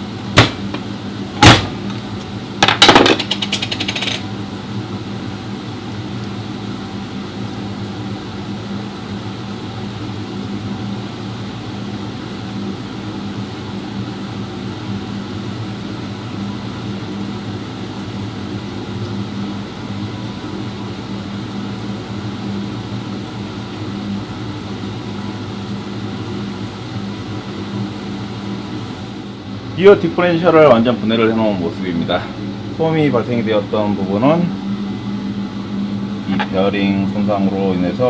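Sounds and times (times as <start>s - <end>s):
low mechanical hum: 0.0s - 38.0s
metal parts clinking and rattling: 2.6s - 4.2s.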